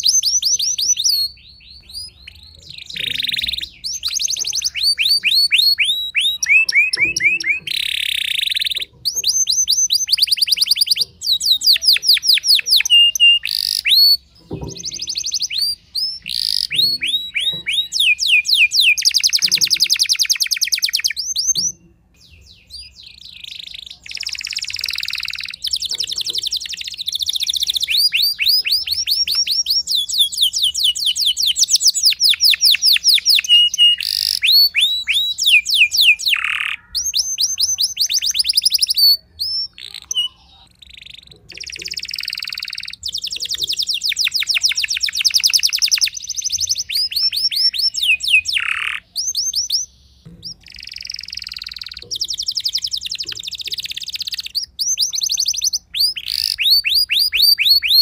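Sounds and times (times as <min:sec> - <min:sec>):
canary singing fast trills: 0:00.0 - 0:58.0.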